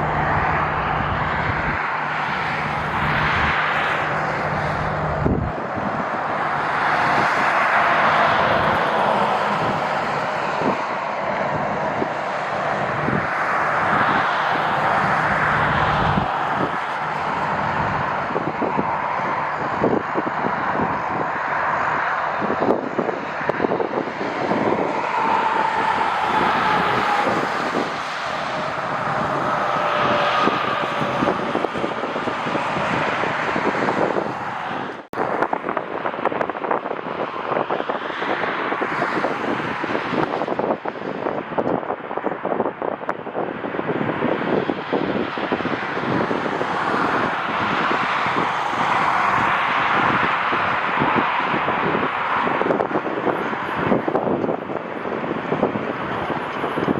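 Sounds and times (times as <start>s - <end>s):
faint engine whine: 0.0s - 37.0s
jet engines roaring: 0.0s - 56.9s
wind buffeting microphone: 0.0s - 56.9s.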